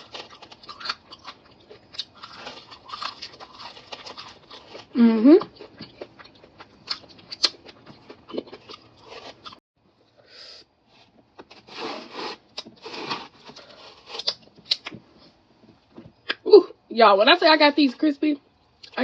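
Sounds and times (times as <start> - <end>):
chewing crispy fried chicken: 0.0 - 9.6.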